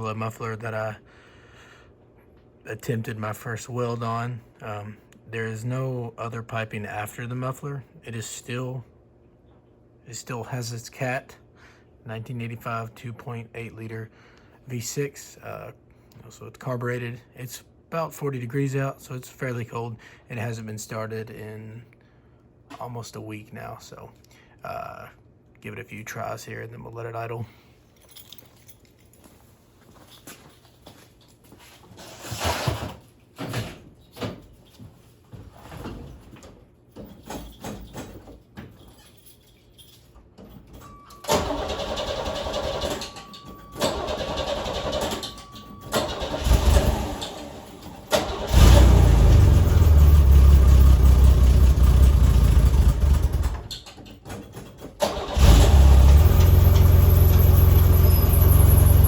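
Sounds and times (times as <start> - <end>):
starter motor cranking: 41.3 - 43.2, 43.8 - 53.7, 55.0 - 59.0.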